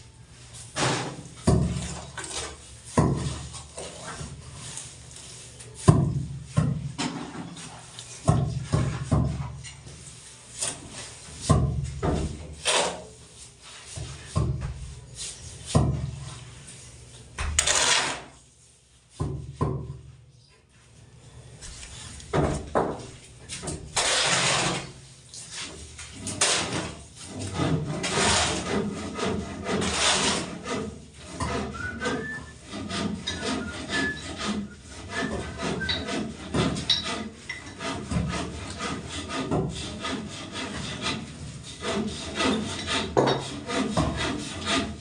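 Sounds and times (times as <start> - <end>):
wood rasping strokes: 24.0 - 24.9, 25.6 - 45.0.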